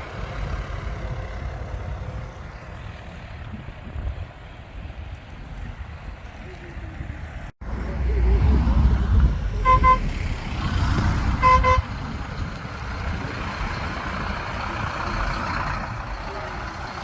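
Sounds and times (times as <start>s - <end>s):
diesel engine rumble: 0.0s - 17.0s
truck horn toots: 9.6s - 10.2s, 11.3s - 12.0s, 16.2s - 17.0s.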